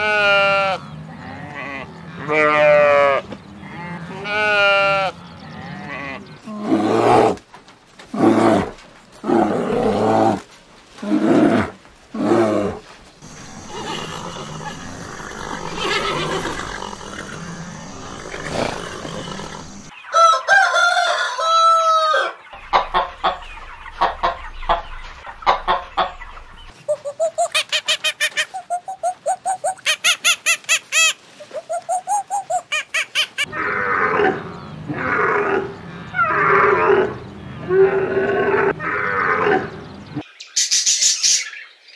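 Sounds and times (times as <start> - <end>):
hens clucking: 13.2 - 19.9, 22.5 - 33.5
loud animal calls: 13.2 - 19.9
different pitched animal call: 13.3 - 19.9, 26.9 - 39.7
rooster crowing: 19.4 - 22.4.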